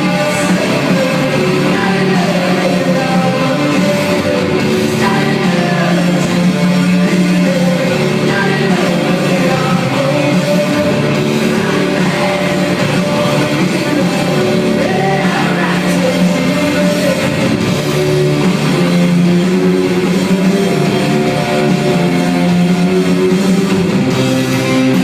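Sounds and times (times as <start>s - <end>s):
person singing: 0.0s - 17.8s
live rock band playing: 0.0s - 25.0s.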